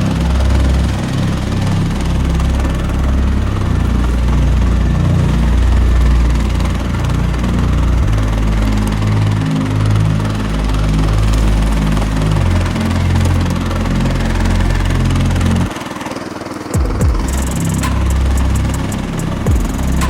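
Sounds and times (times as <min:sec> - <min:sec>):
tractor engine running: 0:16.6 - 0:20.0.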